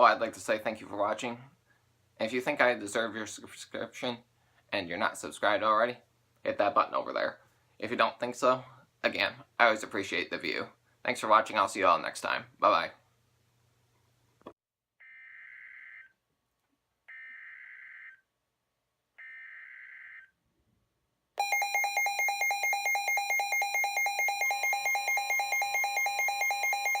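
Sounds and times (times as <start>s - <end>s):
rapid pulsing alarm beeps: 21.4s - 27.0s.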